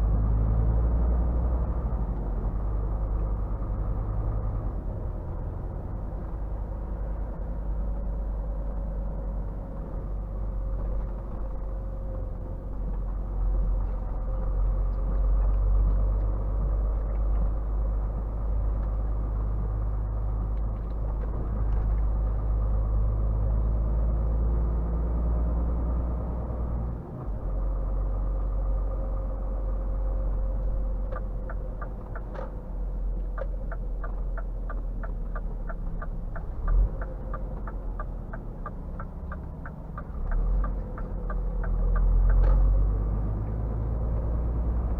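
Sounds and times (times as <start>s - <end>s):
truck diesel engine drone: 0.0s - 44.9s
regular ticking: 33.3s - 42.4s.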